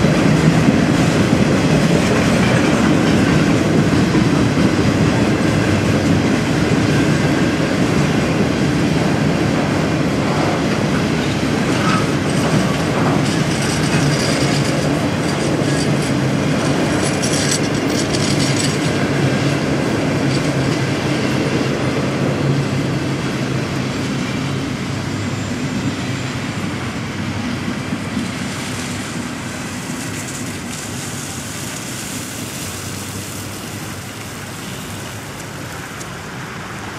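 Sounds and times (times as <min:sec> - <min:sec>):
train wheels clicking over rail joints: 0:00.0 - 0:36.9.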